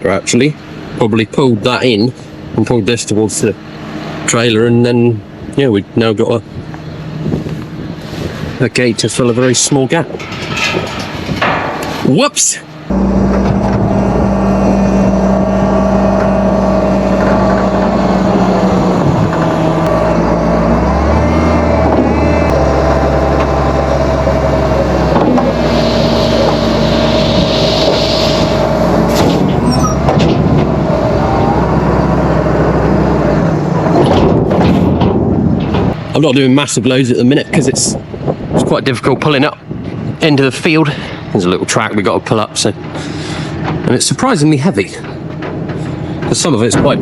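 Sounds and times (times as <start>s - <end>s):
tractor engine running: 0.0s - 47.0s
hiss: 25.6s - 28.7s.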